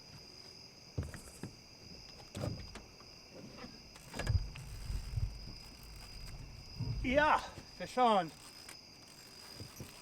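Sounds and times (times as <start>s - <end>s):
night insects chorus: 0.0s - 10.0s
dull knocks and thumps: 6.7s - 7.7s.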